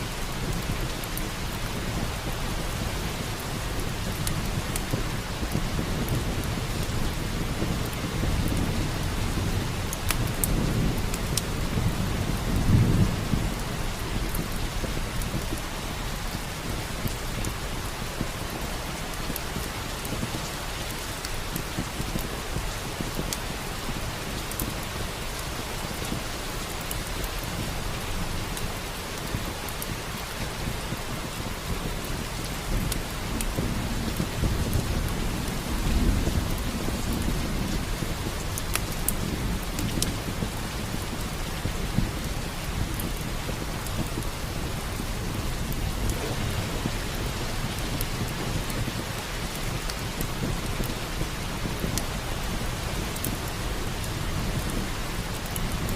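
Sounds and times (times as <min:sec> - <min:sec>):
steady rain: 0:00.0 - 0:55.9
low rolling thunder: 0:00.1 - 0:25.2, 0:30.7 - 0:55.9.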